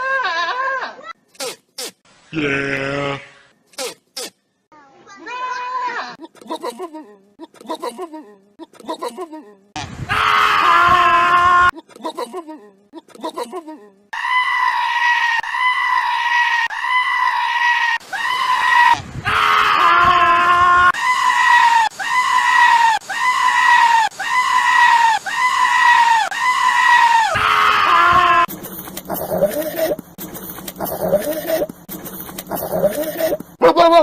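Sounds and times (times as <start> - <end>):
goat screaming: 0.0 - 1.2, 5.2 - 6.2, 10.1 - 11.7, 14.1 - 28.5, 32.5 - 34.0.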